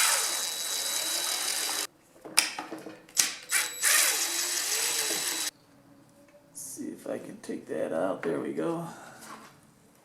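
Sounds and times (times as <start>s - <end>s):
cordless drill whining: 0.0s - 1.9s, 3.5s - 5.5s.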